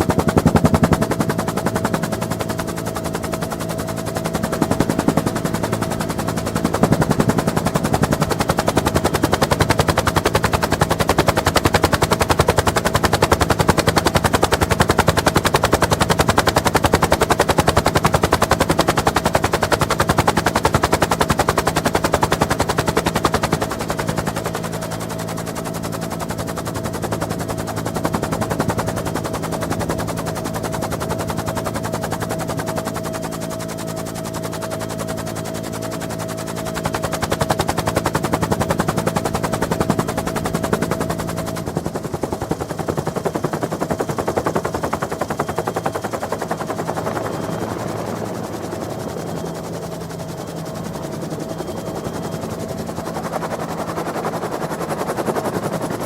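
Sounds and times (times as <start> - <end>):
turbine engines droning: 0.0 - 12.2, 35.7 - 56.0
helicopter rotor chop: 0.0 - 56.0.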